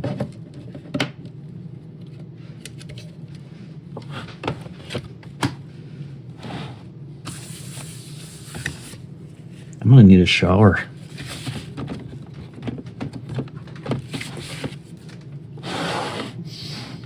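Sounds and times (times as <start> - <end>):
steady low hum: 0.0 - 17.0
plastic parts clicking and knocking: 11.7 - 14.8.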